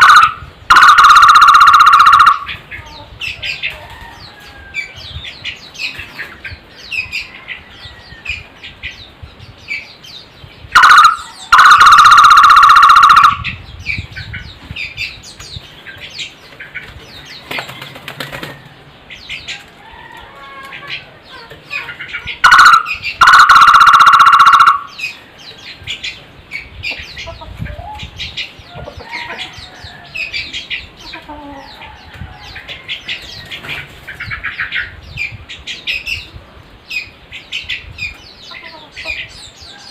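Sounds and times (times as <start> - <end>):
barbet pulsed call: 0.0 - 2.5, 10.8 - 13.5, 22.5 - 25.0
small birds chirping: 0.0 - 39.9.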